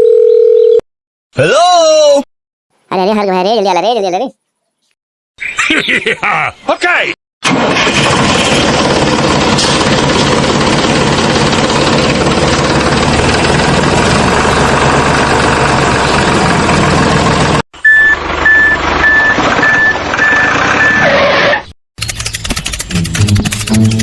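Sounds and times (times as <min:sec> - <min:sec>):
vehicle motor running: 0:07.9 - 0:21.4, 0:22.2 - 0:24.0
reversing beeper: 0:17.8 - 0:21.2.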